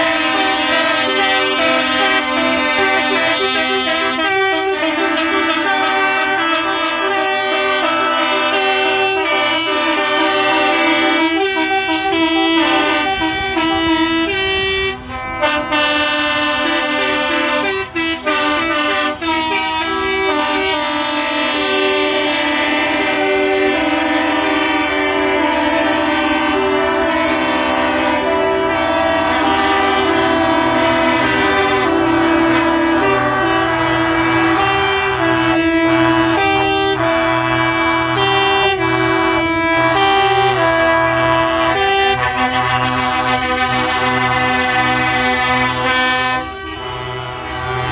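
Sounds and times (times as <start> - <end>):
truck air horns: 0.0 - 47.9.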